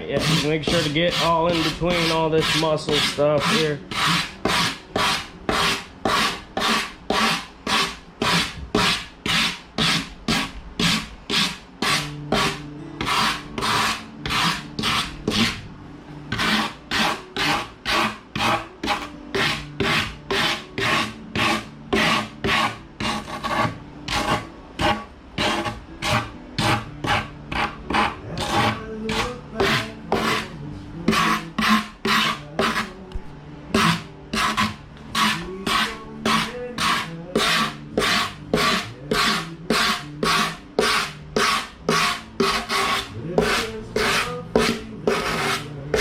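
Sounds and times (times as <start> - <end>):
hand tool scraping: 0.0 - 15.6, 16.3 - 33.0, 33.7 - 46.0.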